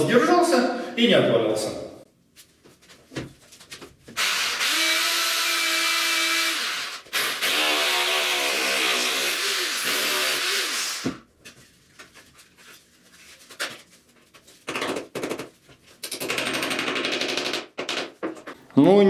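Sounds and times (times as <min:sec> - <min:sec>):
power drill drilling: 0:04.2 - 0:11.2.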